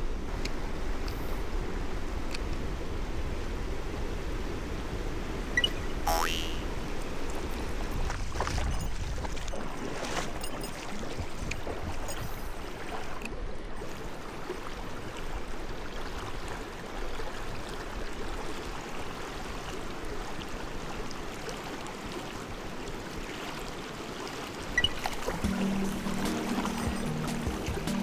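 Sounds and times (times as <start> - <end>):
stream water rushing: 0.0 - 28.0.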